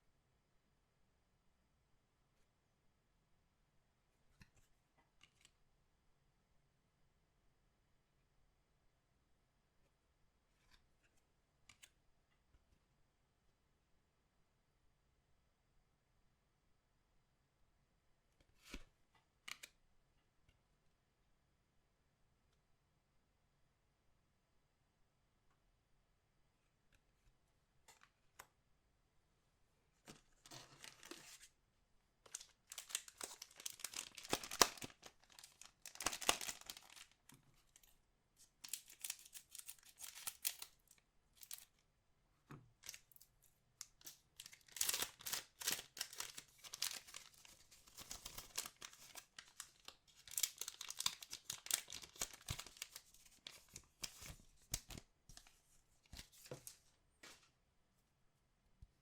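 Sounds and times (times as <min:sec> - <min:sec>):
card packs tearing open: 0:30.7 - 0:31.4, 0:32.3 - 0:37.1, 0:38.6 - 0:40.7, 0:44.0 - 0:55.0
wrappers crinkling: 0:32.3 - 0:37.2, 0:38.6 - 0:41.7, 0:43.8 - 0:55.0.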